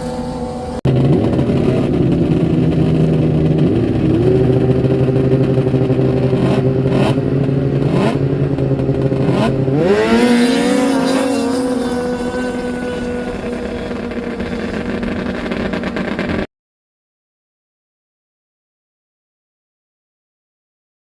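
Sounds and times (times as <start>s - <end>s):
snowmobile engines running hard: 0.0s - 16.5s.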